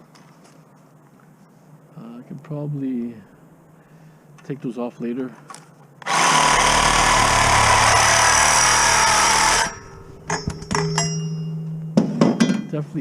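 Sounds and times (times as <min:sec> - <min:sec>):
power tool whining: 0:06.0 - 0:10.8
sharp ringing clinks: 0:09.6 - 0:12.0.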